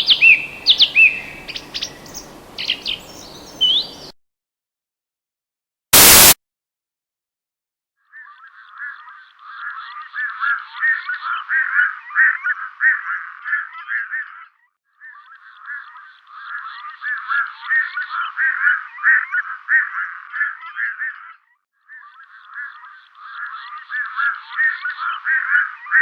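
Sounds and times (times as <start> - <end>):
bird calls: 0.0 - 4.2.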